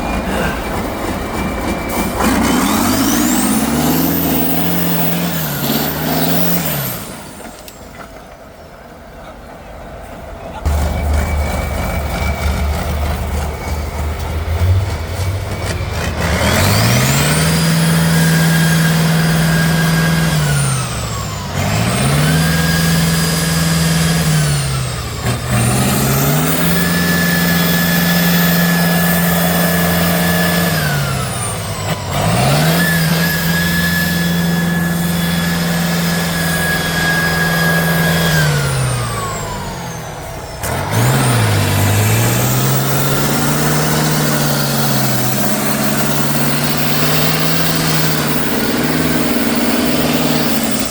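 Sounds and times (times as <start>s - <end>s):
diesel truck engine revving: 0.0s - 8.4s, 10.6s - 50.9s
whine rising and falling: 1.4s - 7.8s.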